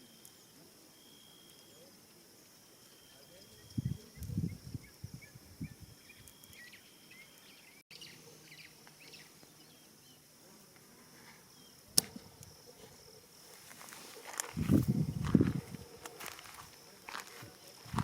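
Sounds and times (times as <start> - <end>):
faint bird chirps: 0.0 - 10.3
high-pitched insect drone: 11.4 - 18.0
sharp click: 12.0 - 12.5.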